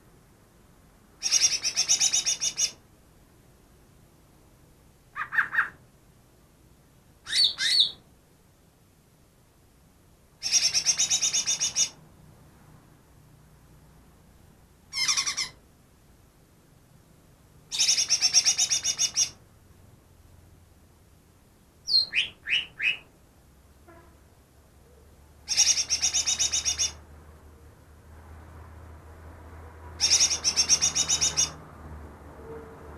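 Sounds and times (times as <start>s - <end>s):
bird singing varied song: 1.2s - 2.8s, 7.2s - 8.0s, 10.4s - 12.0s, 17.7s - 19.4s, 21.8s - 23.1s, 24.8s - 27.0s, 30.0s - 31.6s.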